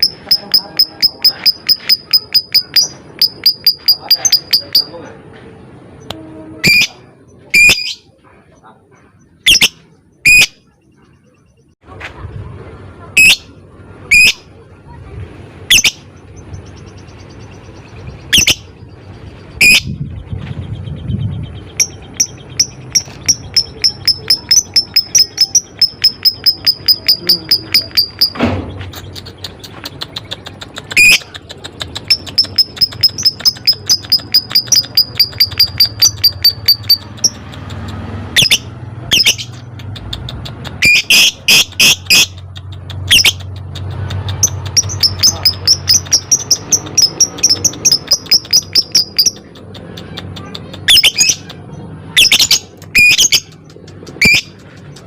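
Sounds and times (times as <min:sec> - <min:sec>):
rapid high ticking chatter: 0:00.0 - 0:05.0, 0:21.6 - 0:28.4, 0:29.0 - 0:55.0
shrill lovebird calls: 0:09.4 - 0:10.6, 0:15.7 - 0:16.0, 0:38.3 - 0:39.6, 0:40.8 - 0:42.4, 0:43.1 - 0:43.4, 0:44.4 - 0:49.4, 0:50.9 - 0:51.5.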